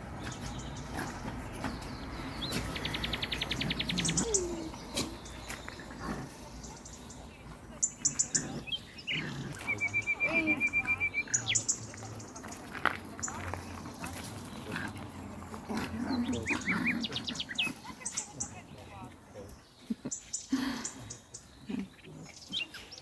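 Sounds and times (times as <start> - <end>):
high bird chirps: 6.6 - 12.6
bird trills: 7.8 - 12.0.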